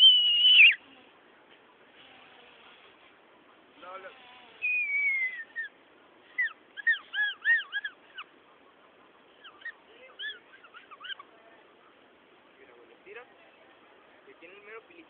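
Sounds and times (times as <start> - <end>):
gum wrapper squeaky whistles: 0.0 - 0.8, 4.6 - 5.7.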